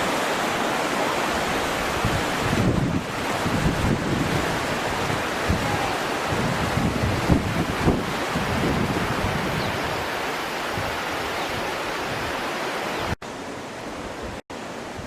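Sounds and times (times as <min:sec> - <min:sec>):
river rapids rushing: 0:00.0 - 0:15.0
wind buffeting microphone: 0:01.4 - 0:12.4.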